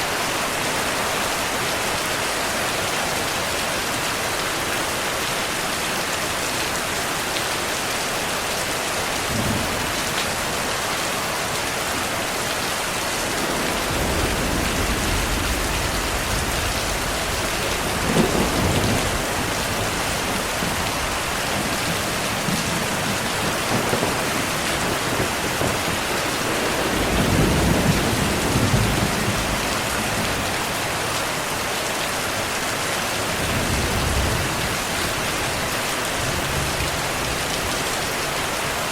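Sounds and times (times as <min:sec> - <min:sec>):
heavy rainfall: 0:00.0 - 0:38.9
thunder rumbling: 0:12.9 - 0:30.7.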